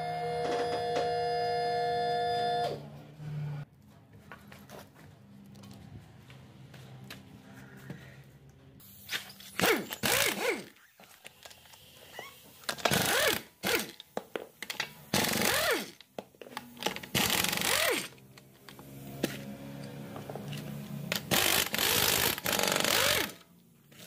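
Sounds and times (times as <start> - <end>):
impact wrench bursts: 8.8 - 10.9, 12.1 - 14.0, 15.1 - 16.0, 16.8 - 18.2, 21.1 - 23.4.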